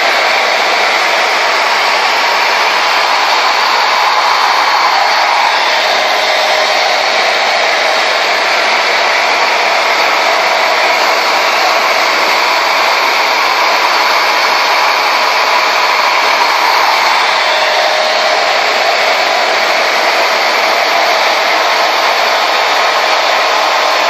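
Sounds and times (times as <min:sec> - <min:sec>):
blow dryer whoosh: 0:00.0 - 0:24.0.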